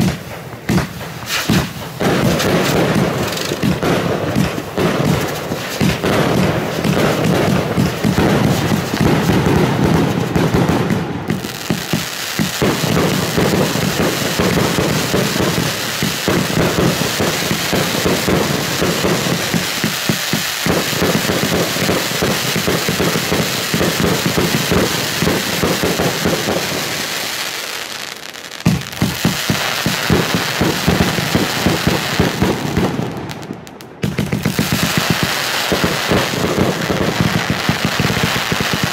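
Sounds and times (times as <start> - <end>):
sharp firework bang: 0.0 - 10.8
fireworks crackling: 0.0 - 38.9.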